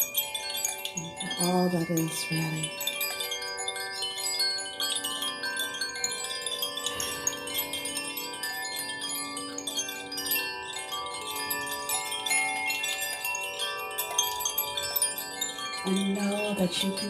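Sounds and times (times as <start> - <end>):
chimes ringing: 0.0 - 17.0.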